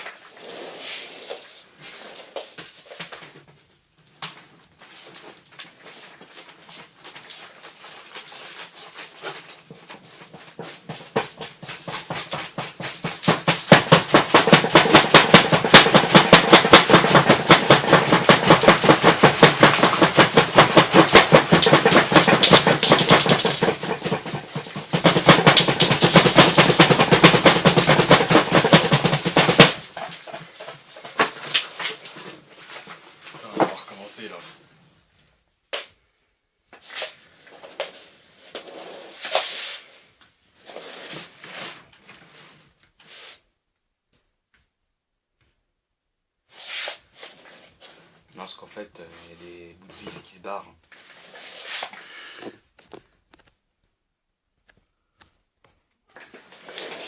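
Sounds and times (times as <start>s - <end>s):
cardboard tumble dryer rattling: 8.2s - 33.9s.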